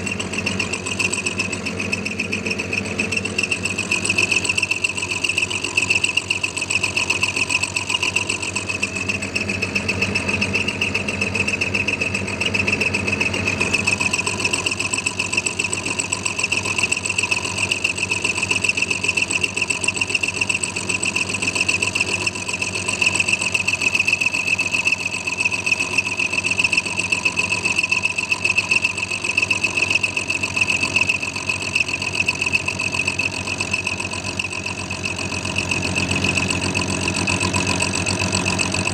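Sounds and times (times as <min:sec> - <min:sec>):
milling machine cutting steel: 0:29.5 - 0:38.9.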